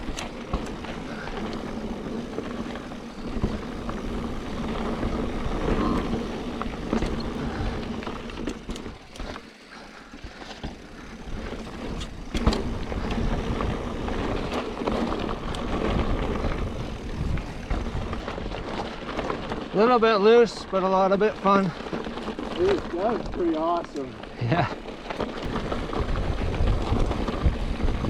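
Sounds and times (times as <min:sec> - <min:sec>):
bike rattling over bumps: 0:00.0 - 0:28.0
tyres skidding on loose dirt: 0:00.0 - 0:28.0
wind rushing over microphone: 0:11.3 - 0:19.6, 0:25.4 - 0:28.0.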